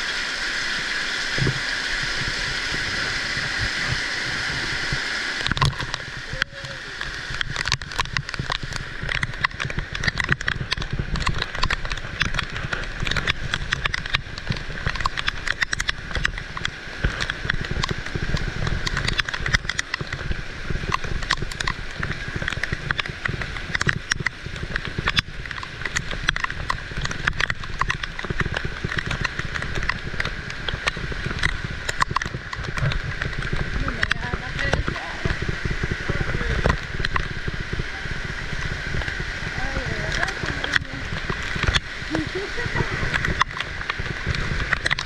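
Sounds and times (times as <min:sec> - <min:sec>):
heavy rain: 0:00.0 - 0:45.0
raindrops ticking close by: 0:00.0 - 0:45.0.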